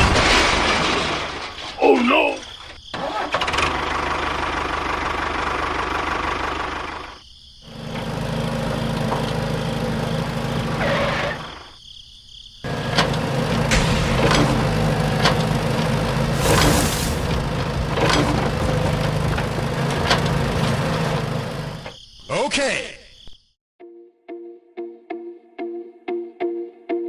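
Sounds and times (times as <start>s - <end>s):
small engine running: 3.3s - 11.6s, 12.7s - 21.9s.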